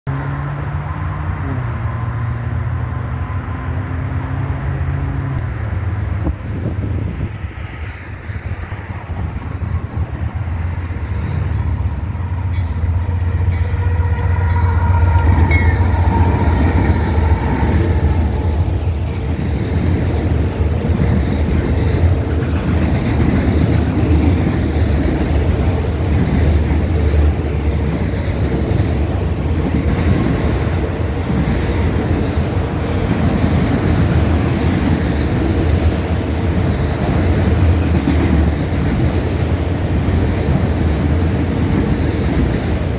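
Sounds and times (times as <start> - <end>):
diesel locomotive rumbling: 0.1 - 42.9
train wheels clattering on rail joints: 11.0 - 42.9.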